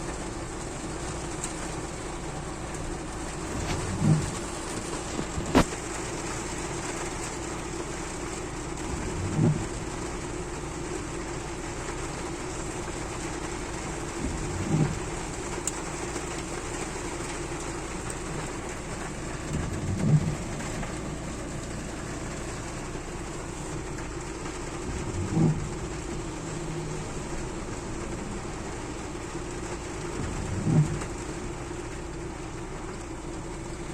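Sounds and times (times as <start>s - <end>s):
rain falling: 0.0s - 33.9s
short low thuds: 2.9s - 10.2s, 13.9s - 31.6s
low hum: 8.8s - 10.2s, 17.7s - 31.9s.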